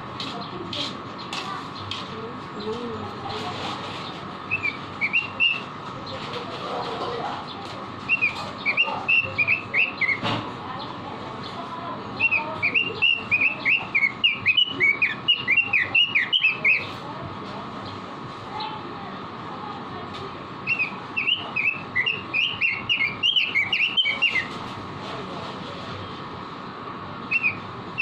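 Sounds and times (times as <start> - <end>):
steady background hum: 0.0 - 28.0
bird singing whistled notes: 4.5 - 5.7, 8.1 - 10.3, 12.2 - 16.9, 20.6 - 24.5, 27.3 - 28.0.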